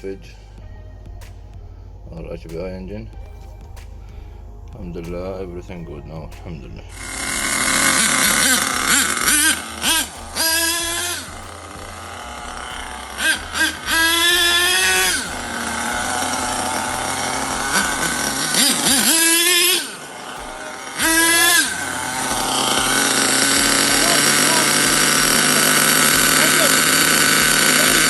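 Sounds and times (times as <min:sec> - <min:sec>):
small nitro engine revving: 0:06.9 - 0:28.0.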